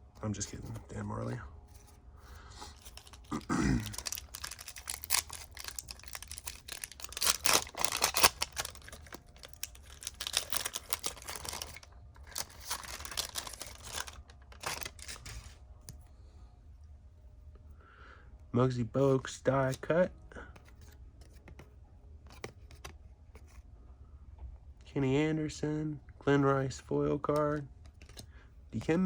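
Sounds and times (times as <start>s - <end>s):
cards being handled: 0.4s - 2.0s, 2.6s - 16.0s, 20.5s - 23.6s, 27.3s - 29.0s
wrapper tearing and crinkling: 2.7s - 15.6s.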